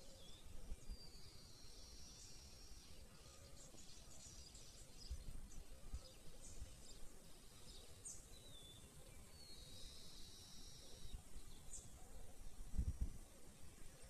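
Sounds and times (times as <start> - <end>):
birds chirping: 0.0 - 14.0
wind rumble on microphone: 12.4 - 13.4.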